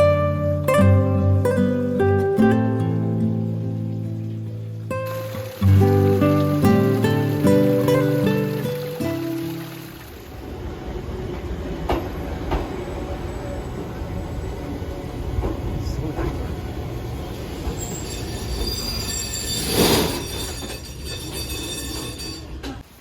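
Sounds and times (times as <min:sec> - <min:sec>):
train rumbling on rails: 0:05.1 - 0:22.9
wheels squealing against rail: 0:17.2 - 0:22.8
wheel clacks: 0:17.5 - 0:22.8.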